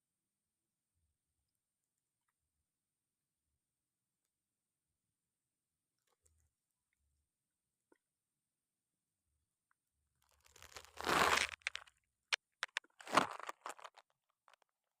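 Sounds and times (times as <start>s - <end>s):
eels wet crackling: 10.5s - 14.0s.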